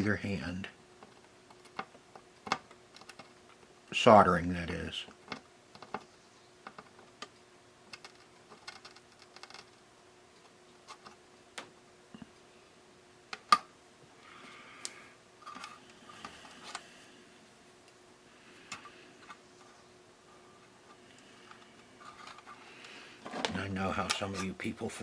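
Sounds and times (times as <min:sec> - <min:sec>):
soft hissing: 0:14.1 - 0:24.7.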